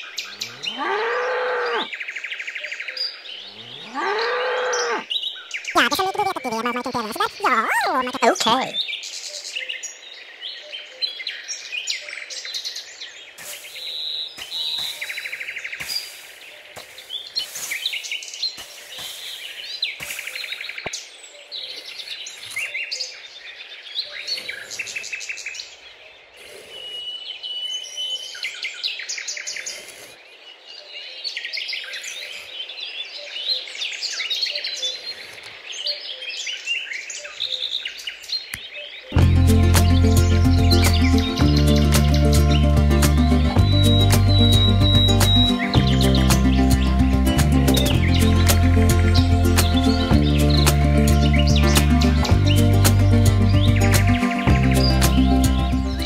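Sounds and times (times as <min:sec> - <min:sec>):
small birds chirping: 0:00.0 - 0:56.0
wooden tool scraping sand: 0:13.4 - 0:20.6.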